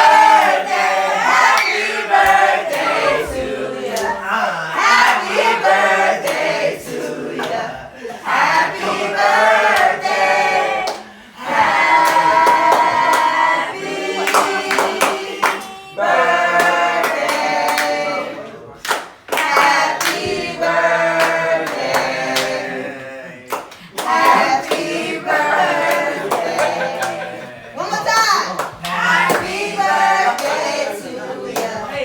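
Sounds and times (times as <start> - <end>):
group singing: 0.0 - 32.0
hand claps: 6.2 - 6.5, 7.4 - 7.6, 11.9 - 13.4, 14.2 - 15.8, 18.8 - 20.6, 23.5 - 25.0, 28.1 - 29.7.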